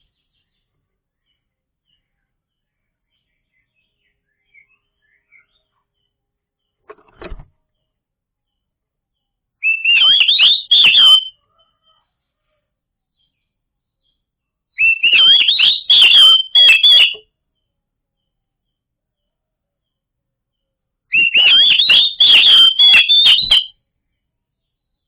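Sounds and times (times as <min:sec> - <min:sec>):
bird singing whistled notes: 0:03.1 - 0:05.8, 0:09.6 - 0:11.4, 0:14.8 - 0:17.2, 0:21.1 - 0:23.7.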